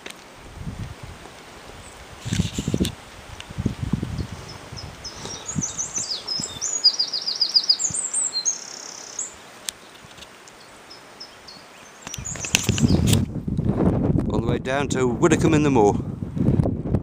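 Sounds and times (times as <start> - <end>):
songbird singing: 1.8 - 13.4.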